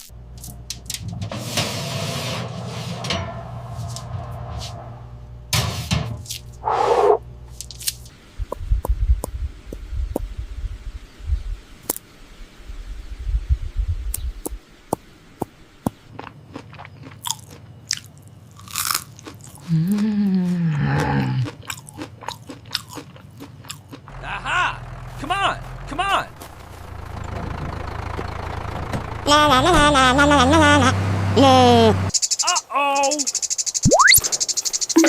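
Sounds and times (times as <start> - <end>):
rising and falling call: 6.6 - 7.2, 31.7 - 34.3
crunching and chewing: 15.9 - 24.2.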